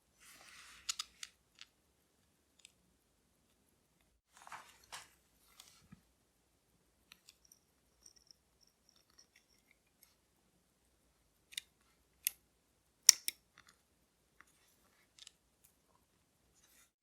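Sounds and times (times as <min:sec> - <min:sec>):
clicks of watch tools and parts: 0:00.8 - 0:01.7, 0:13.1 - 0:13.8.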